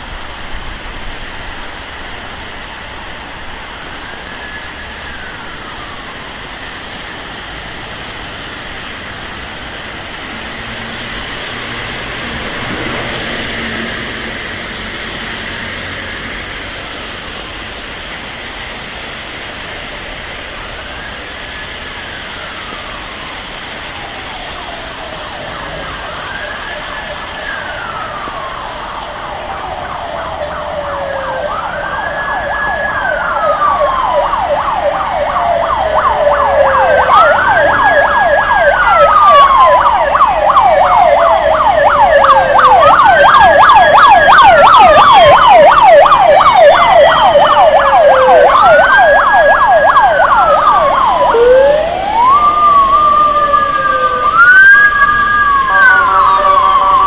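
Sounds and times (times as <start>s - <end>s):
ambulance siren wailing: 0.4s - 57.0s
fast yelping siren warble: 24.2s - 57.0s.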